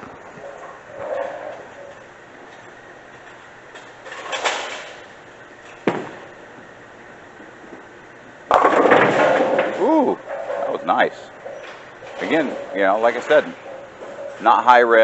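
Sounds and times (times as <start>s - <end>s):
bowling ball rolling: 0.0s - 2.1s, 5.8s - 15.0s
bowling ball thud on lane: 5.8s - 6.3s, 8.5s - 9.8s
bowling ball crashing into pins: 5.8s - 6.4s, 8.5s - 10.7s.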